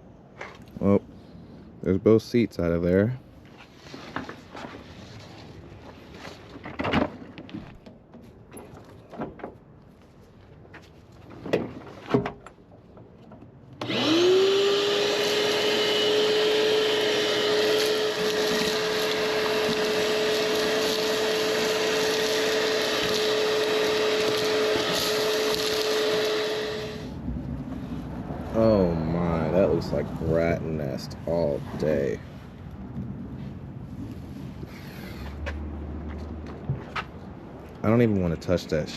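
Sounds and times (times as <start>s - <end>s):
electric motor whining: 13.8s - 27.2s.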